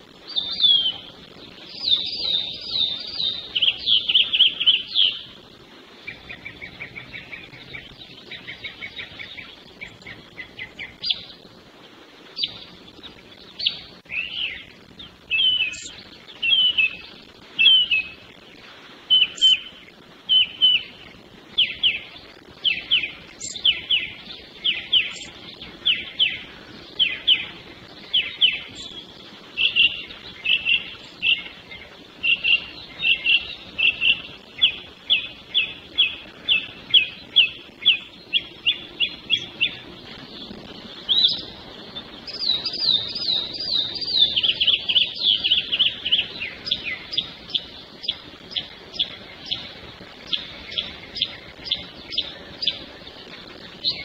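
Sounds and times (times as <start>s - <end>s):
songbirds whistling: 0.0s - 11.6s, 12.3s - 54.0s
higher-pitched bird phrase: 0.3s - 5.4s, 12.4s - 18.2s, 19.1s - 52.9s.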